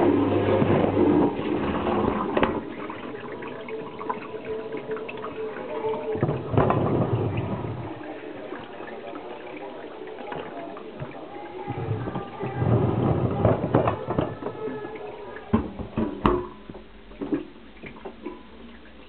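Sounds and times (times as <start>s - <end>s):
water spraying inside dishwasher: 0.0s - 19.0s.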